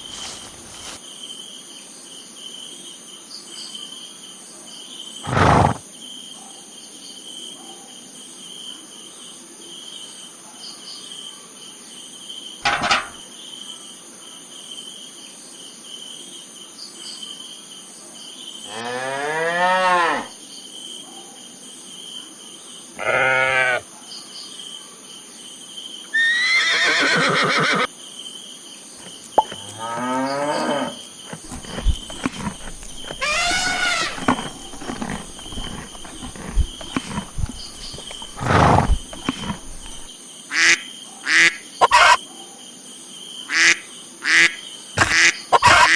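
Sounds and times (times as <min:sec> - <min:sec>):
cricket chorus: 0:00.0 - 0:45.9
cattle mooing: 0:29.4 - 0:37.0.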